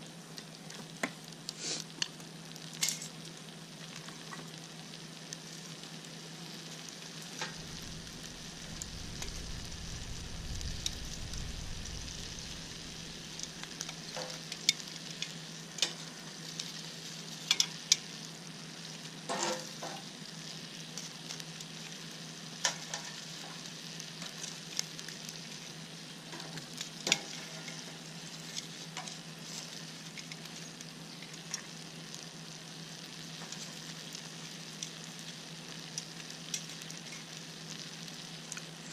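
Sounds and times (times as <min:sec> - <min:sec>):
food sizzling in a pan: 0:00.0 - 0:38.9
low rumble: 0:07.5 - 0:14.1.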